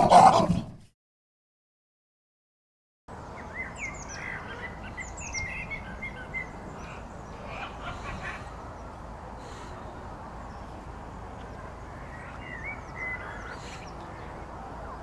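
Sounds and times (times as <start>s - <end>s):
outdoor background hiss: 3.1s - 15.0s
small birds chirping and twittering: 3.1s - 15.0s.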